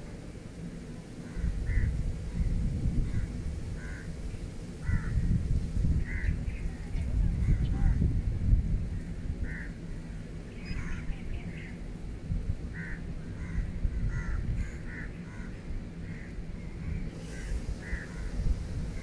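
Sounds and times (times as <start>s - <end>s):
birds calling: 1.2s - 8.1s, 8.9s - 19.0s.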